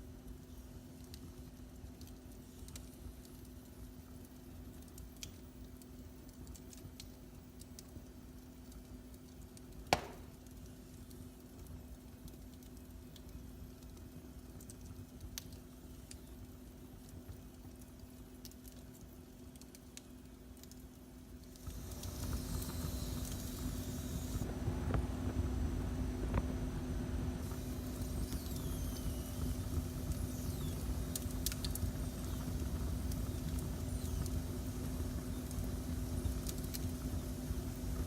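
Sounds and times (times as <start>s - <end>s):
fireplace fire crackling: 0.0s - 38.0s
steady low hum: 0.0s - 38.0s
sharp loud pop: 9.9s - 10.3s.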